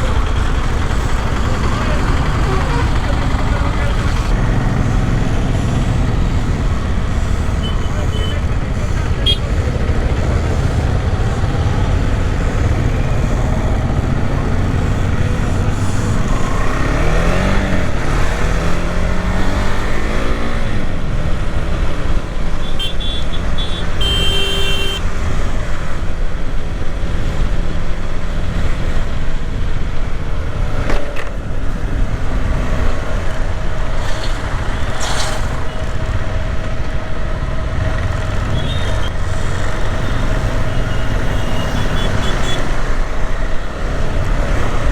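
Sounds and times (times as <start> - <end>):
motorcycle engine running: 0.0 - 17.9
horn toot: 22.6 - 25.0.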